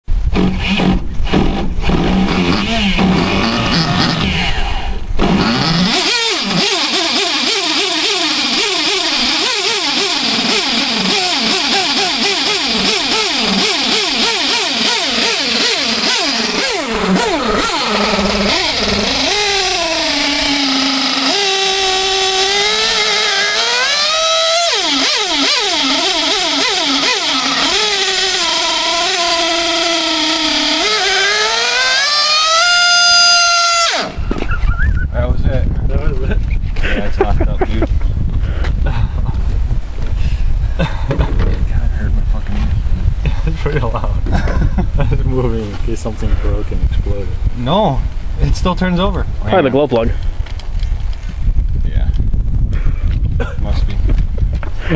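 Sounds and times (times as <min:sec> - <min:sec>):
model engine revving at high pitch: 0:01.8 - 0:34.2.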